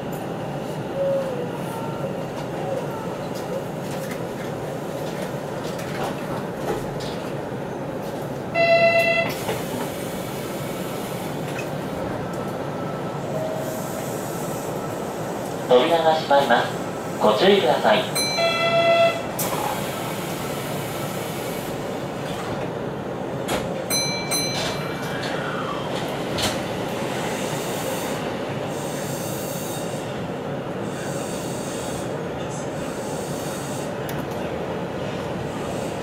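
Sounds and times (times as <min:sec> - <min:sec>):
train wheels rumbling on rails: 0:00.0 - 0:36.0
short tone: 0:08.6 - 0:09.4.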